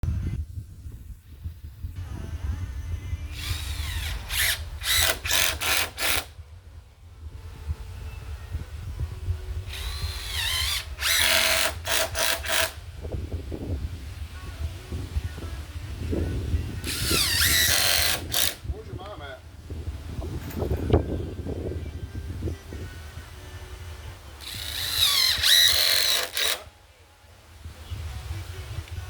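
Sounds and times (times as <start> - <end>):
power drill driving screws: 3.3 - 6.3, 9.7 - 12.8, 16.8 - 18.6, 24.4 - 26.7
steady low rumble: 6.3 - 10.2, 18.6 - 24.3.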